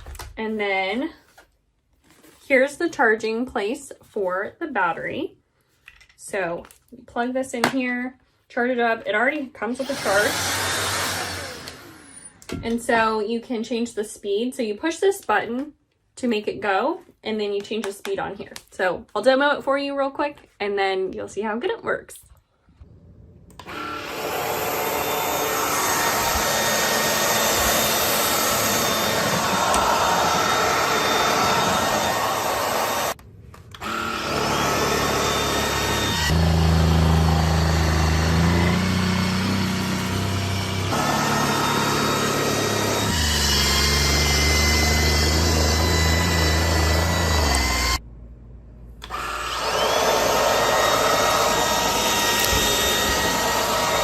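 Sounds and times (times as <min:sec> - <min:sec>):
stick vacuum motor whine: 0:09.8 - 0:12.6, 0:23.5 - 0:48.0, 0:49.0 - 0:54.0.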